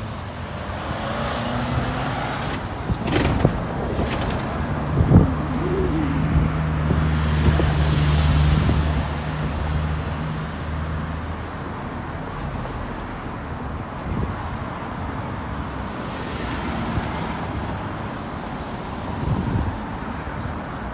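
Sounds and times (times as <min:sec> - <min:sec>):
road noise: 0:00.0 - 0:20.9
vehicle engine passing by: 0:00.9 - 0:10.4.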